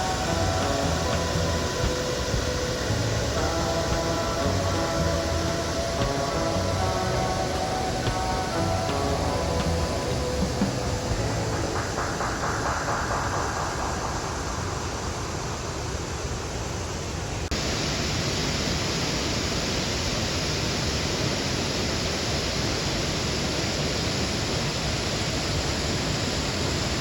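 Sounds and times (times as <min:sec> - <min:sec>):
waterfall rushing: 0:00.0 - 0:16.3.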